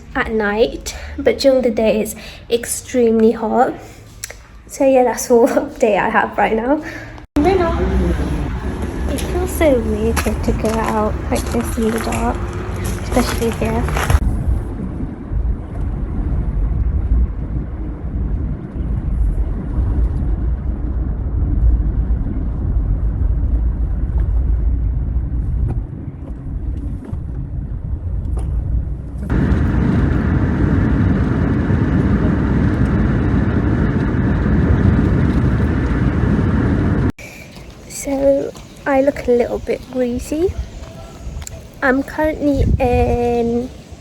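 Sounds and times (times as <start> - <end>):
car road and engine rumble: 7.2 - 40.6.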